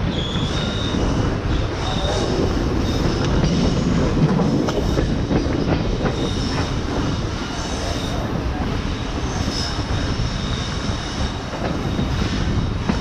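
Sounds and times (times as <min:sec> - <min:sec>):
high wheel squeals: 0:00.0 - 0:04.0
train wheels rumbling on rail: 0:00.0 - 0:13.0.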